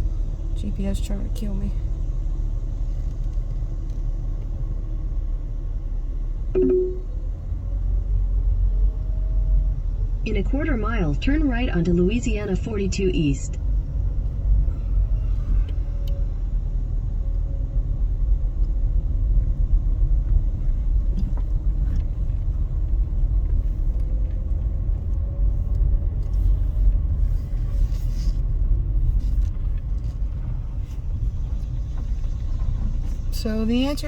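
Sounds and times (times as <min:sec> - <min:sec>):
car road and tyre noise: 0:00.0 - 0:34.0.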